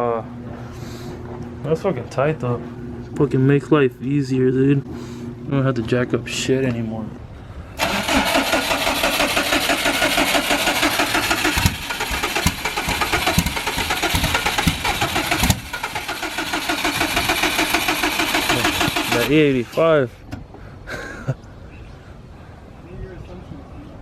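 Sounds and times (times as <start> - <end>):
car engine starter cranking: 7.8 - 19.6.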